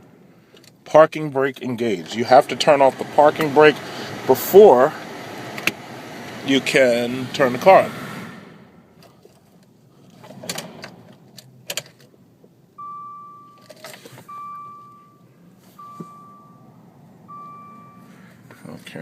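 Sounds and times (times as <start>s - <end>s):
dashboard warning chime: 12.8s - 18.4s.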